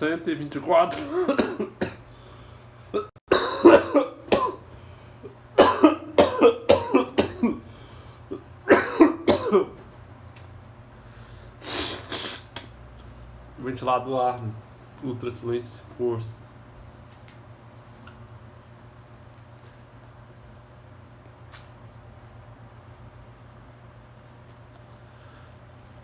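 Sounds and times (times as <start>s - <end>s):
steady low hum: 0.0s - 26.0s
man coughing: 0.9s - 2.1s, 2.9s - 4.7s, 5.6s - 7.7s, 8.3s - 9.8s.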